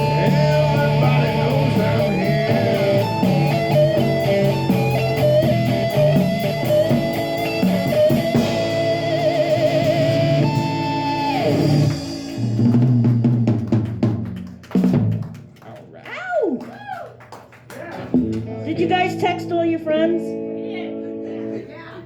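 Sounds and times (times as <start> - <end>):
electric guitar lead: 0.0 - 13.6, 18.1 - 21.7
blues band playing: 0.0 - 15.6, 18.0 - 22.0.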